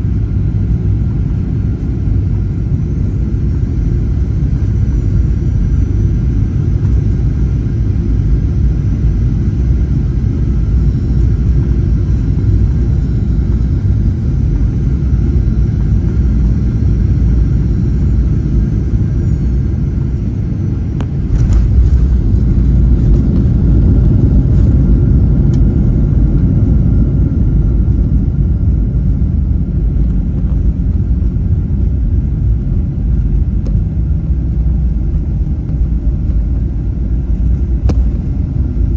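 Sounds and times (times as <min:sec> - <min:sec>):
faint steady tones: 0:00.0 - 0:27.9
aircraft cabin rumble: 0:00.0 - 0:38.9.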